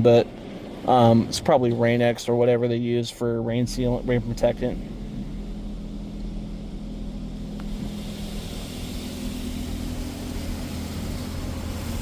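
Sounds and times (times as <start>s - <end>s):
car wash machine hum: 0.0s - 12.0s
water spray hissing on car: 3.7s - 12.0s.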